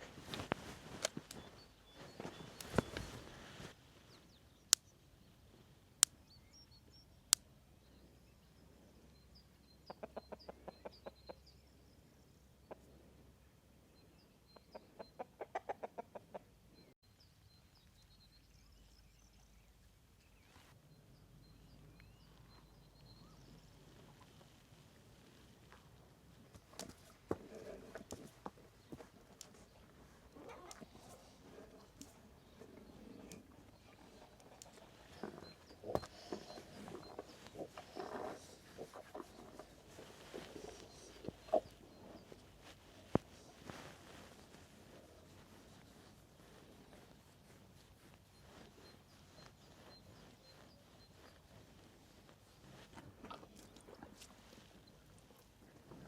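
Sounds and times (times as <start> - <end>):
small birds chirping faintly: 0.0 - 56.0
chickens clucking: 9.9 - 11.4, 14.5 - 16.5, 28.8 - 42.4.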